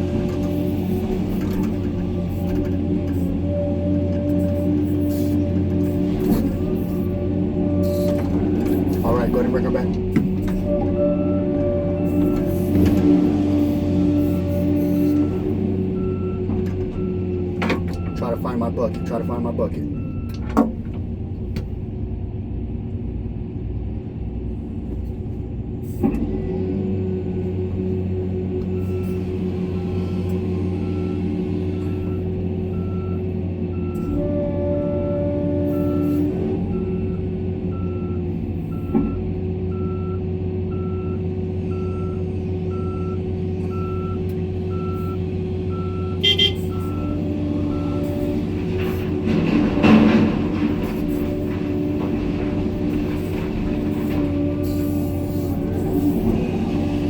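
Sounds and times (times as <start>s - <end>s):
excavator diesel engine rumbling: 0.0s - 57.0s
reverse alarm beeping: 18.0s - 20.4s, 36.7s - 48.2s.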